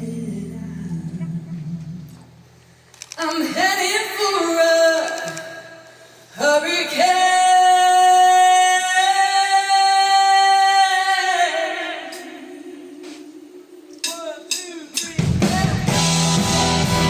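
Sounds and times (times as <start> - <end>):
person singing live: 0.0 - 2.2, 6.4 - 17.0.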